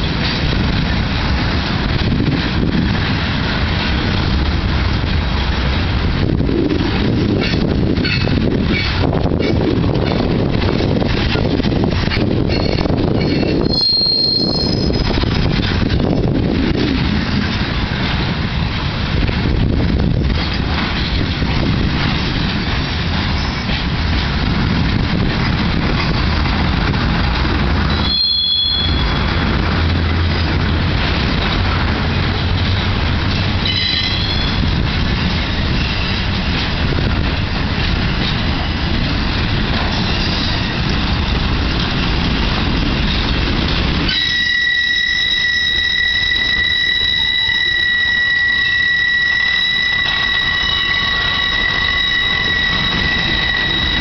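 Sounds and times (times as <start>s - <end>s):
train wheels rumbling on rail: 0.0s - 54.0s
high-pitched wheel squeal: 12.5s - 15.2s, 27.9s - 29.3s, 33.6s - 34.6s, 44.1s - 54.0s
flange squeals: 12.5s - 15.4s, 44.1s - 54.0s.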